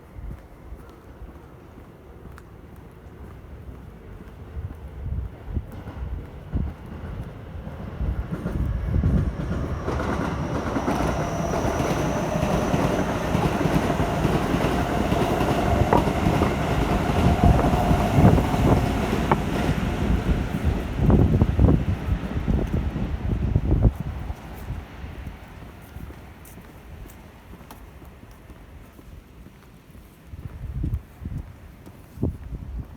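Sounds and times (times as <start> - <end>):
train wheels clicking: 0.5 - 29.8
wind buffeting microphone: 3.6 - 27.1, 30.3 - 32.9
electric train passing: 5.5 - 25.3.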